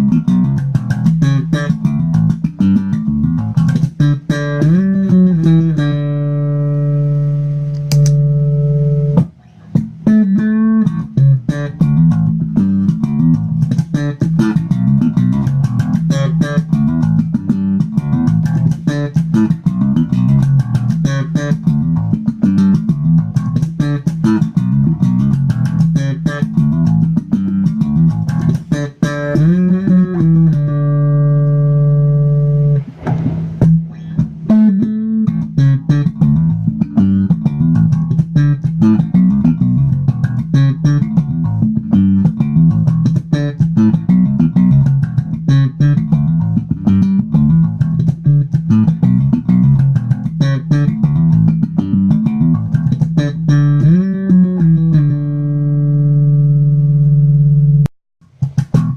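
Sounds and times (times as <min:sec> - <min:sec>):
electric bass guitar plucked: 0:00.0 - 0:58.9
noisy string scrape: 0:32.6 - 0:34.5.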